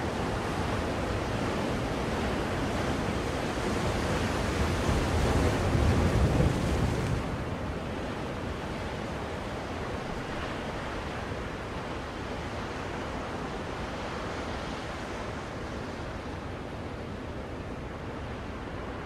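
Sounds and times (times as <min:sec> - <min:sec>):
ocean waves washing on shore: 0:00.0 - 0:19.0.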